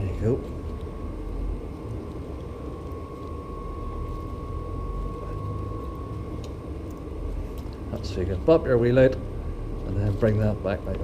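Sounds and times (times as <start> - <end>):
low mechanical rumble: 0.0 - 11.0
thin even whine: 0.0 - 11.0.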